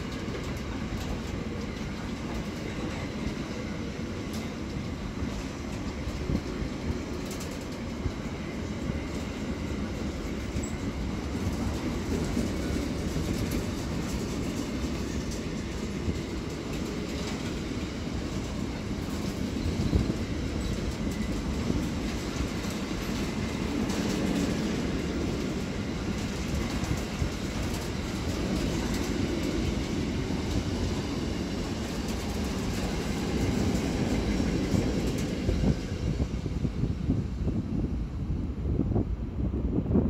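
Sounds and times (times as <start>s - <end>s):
train wheels rumbling on rails: 0.0s - 40.0s
wagons clattering over track: 4.3s - 35.6s.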